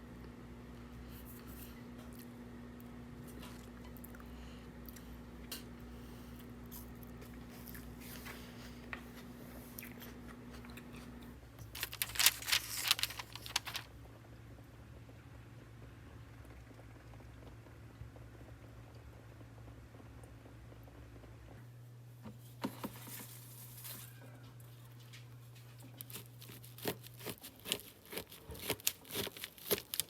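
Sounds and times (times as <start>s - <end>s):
low background hum: 0.0s - 30.0s
crunchy food chewing: 6.6s - 8.4s, 23.8s - 30.0s.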